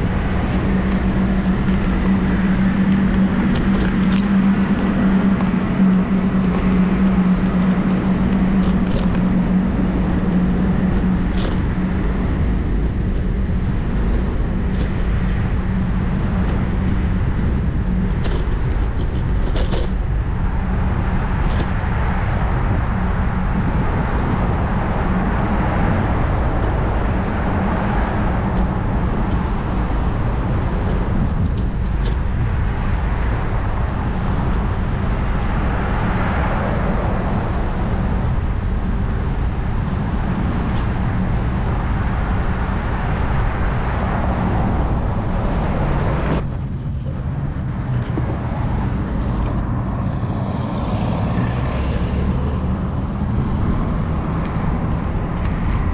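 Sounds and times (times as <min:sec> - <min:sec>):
traffic and road noise rumble: 0:00.0 - 0:55.9
brief high squeal: 0:46.4 - 0:47.9.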